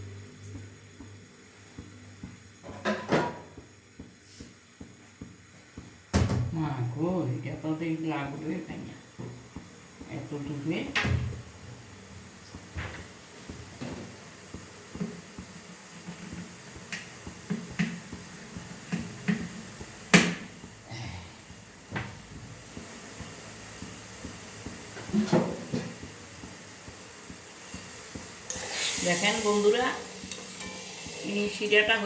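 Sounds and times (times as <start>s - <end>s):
utensils knocking on metal pan: 21.5s - 32.0s.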